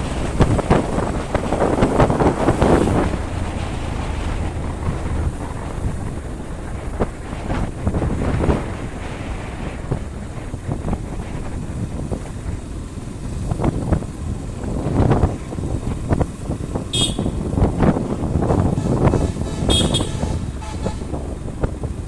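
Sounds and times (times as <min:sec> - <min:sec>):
wind buffeting microphone: 0:00.0 - 0:22.0
high-pitched horn beep: 0:17.0 - 0:17.4, 0:18.8 - 0:21.1.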